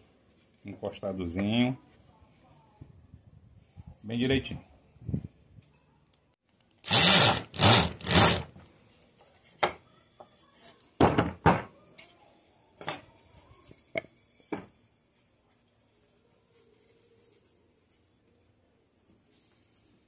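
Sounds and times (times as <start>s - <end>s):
loud rasping strokes: 6.8s - 8.5s
wood and tools knocking on bench: 13.9s - 14.7s.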